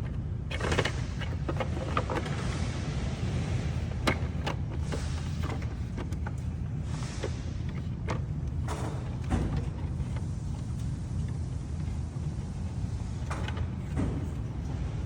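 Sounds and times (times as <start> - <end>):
plastic parts clicking and knocking: 0.0 - 2.6, 3.8 - 11.9.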